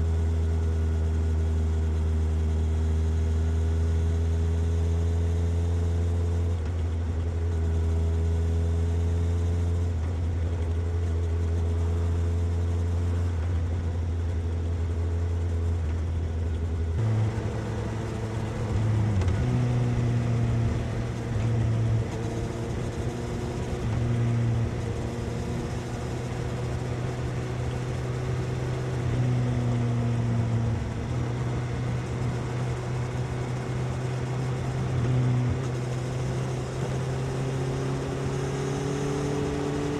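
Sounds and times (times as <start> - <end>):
motorcycle engine revving: 16.9 - 39.9.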